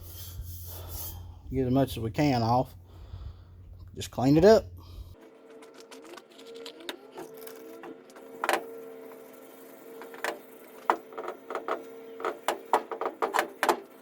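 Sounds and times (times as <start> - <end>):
steel wool scraping metal: 0.0 - 5.1, 7.4 - 14.0
steady low hum: 0.0 - 5.2.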